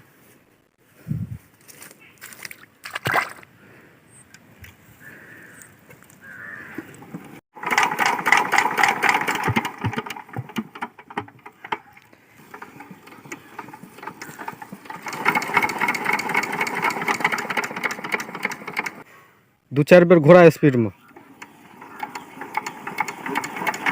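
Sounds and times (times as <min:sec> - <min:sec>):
diesel pump engine clattering: 0:07.0 - 0:19.0, 0:20.9 - 0:23.9.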